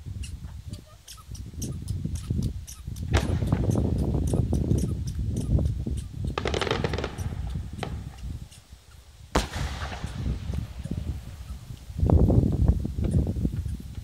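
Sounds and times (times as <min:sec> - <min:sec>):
fireworks bursting: 0:03.1 - 0:03.9, 0:06.2 - 0:08.6, 0:09.3 - 0:12.1
sharp loud bang: 0:09.4 - 0:10.4.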